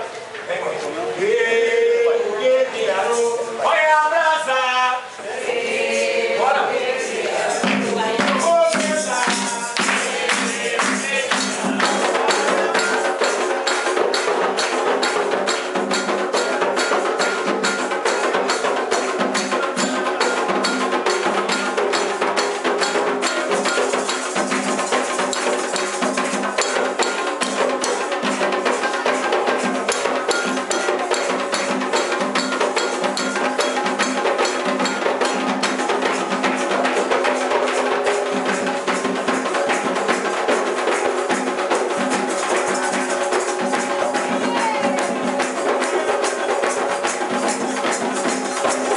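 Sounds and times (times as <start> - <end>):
people chanting: 1.1 - 48.9
hand drums: 5.1 - 48.9
struck bell: 11.3 - 40.5.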